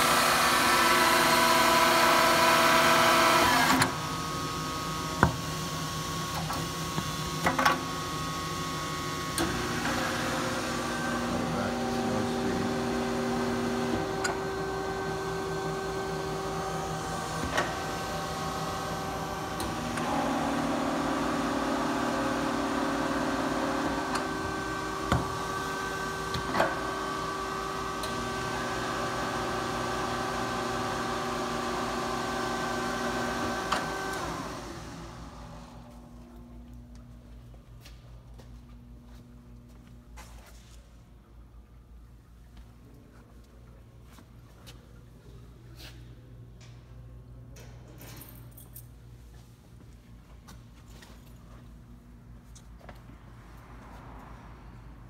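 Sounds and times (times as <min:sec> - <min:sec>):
milling machine whine: 0:00.0 - 0:35.8.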